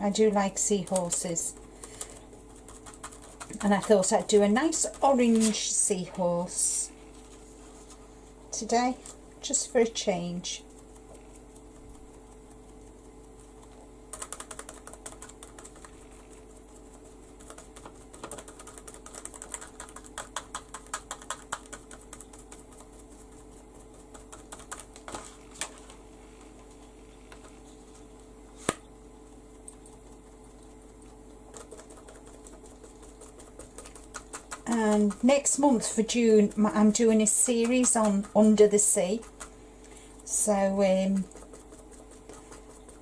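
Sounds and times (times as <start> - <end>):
sponge tapping on paper: 10.7 - 27.6, 31.5 - 40.0, 41.1 - 43.0.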